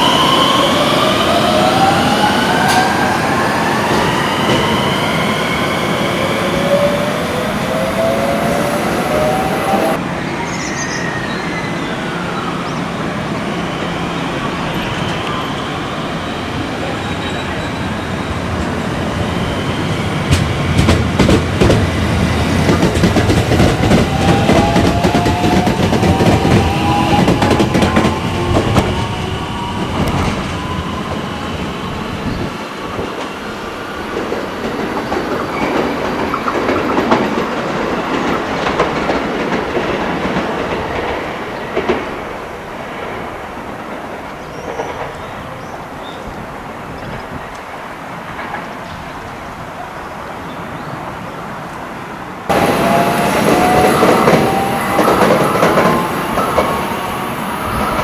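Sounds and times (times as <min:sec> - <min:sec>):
train wheels clattering: 0:20.2 - 0:31.3, 0:32.9 - 0:45.8, 0:52.5 - 0:58.0
train motor whine: 0:22.9 - 0:31.3, 0:52.5 - 0:58.0.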